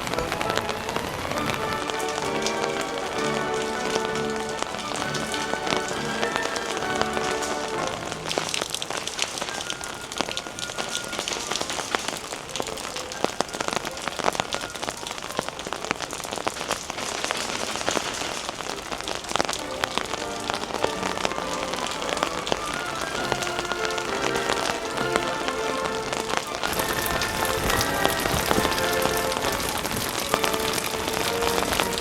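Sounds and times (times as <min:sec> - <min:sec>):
soft music with held tones: 0:00.0 - 0:12.3, 0:19.3 - 0:32.0
rain on umbrella: 0:00.0 - 0:32.0.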